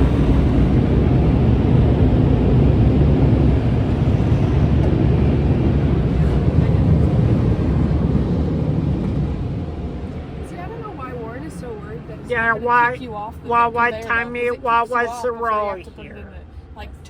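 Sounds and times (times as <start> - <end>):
car wash machinery roaring: 0.0 - 17.0.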